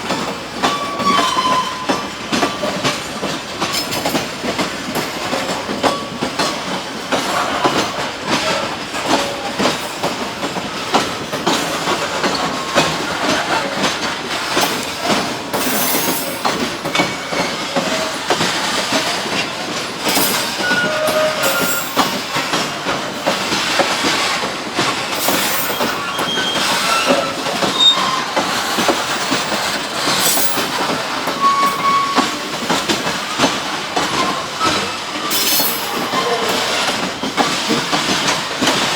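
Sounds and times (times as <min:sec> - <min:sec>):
train wheels clattering over rail joints: 0:00.0 - 0:38.9
train wheels squealing: 0:00.6 - 0:03.1, 0:14.5 - 0:22.8, 0:24.1 - 0:32.7, 0:34.0 - 0:37.5.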